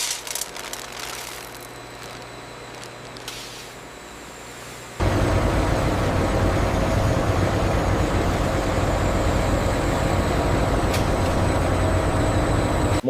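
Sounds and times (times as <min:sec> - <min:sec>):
faint hum: 0:00.0 - 0:13.0
loud machine rumble: 0:05.0 - 0:13.0.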